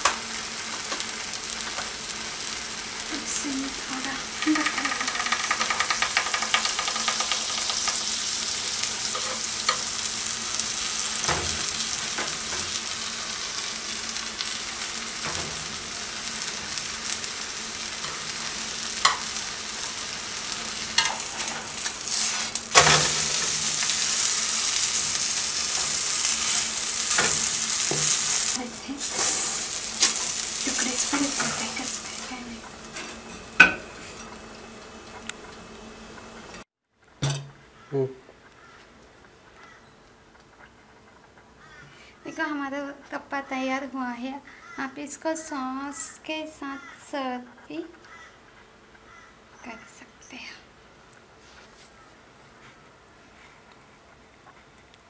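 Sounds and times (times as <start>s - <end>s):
batter sizzling in a pan: 0.0s - 36.6s.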